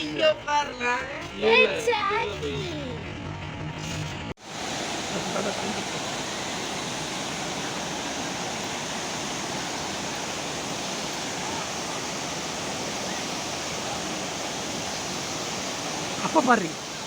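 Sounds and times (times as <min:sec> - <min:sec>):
waterfall roaring: 0:04.4 - 0:17.0.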